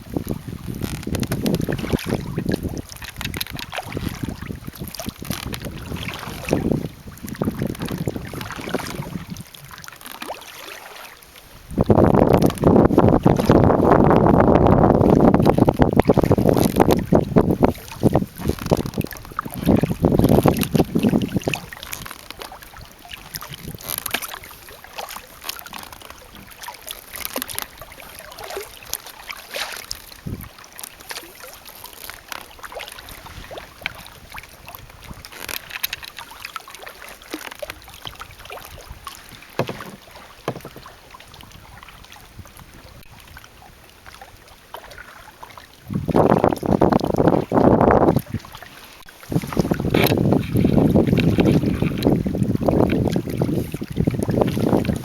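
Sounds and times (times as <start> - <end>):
wind buffeting microphone: 0.0 - 9.8, 11.6 - 22.1, 22.8 - 24.0, 30.1 - 30.5, 45.8 - 55.0
paddle strokes splashing water: 0.0 - 55.0.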